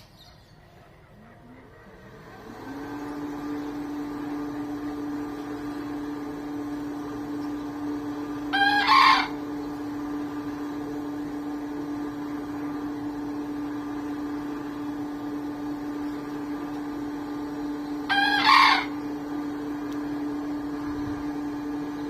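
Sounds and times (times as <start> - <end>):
rooster crowing: 8.4 - 9.5, 18.0 - 19.1.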